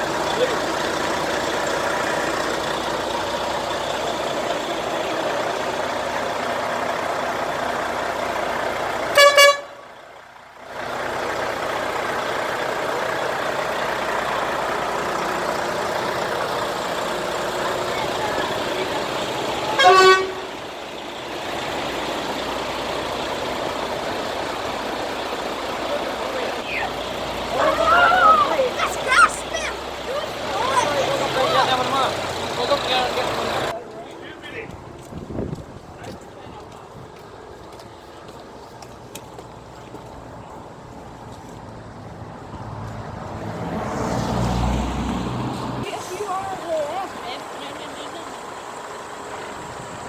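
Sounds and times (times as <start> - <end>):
crowd noise: 0.0 - 9.9, 10.8 - 40.8
traffic noise: 0.0 - 50.0
truck horn blasts: 9.0 - 10.0, 19.6 - 20.8.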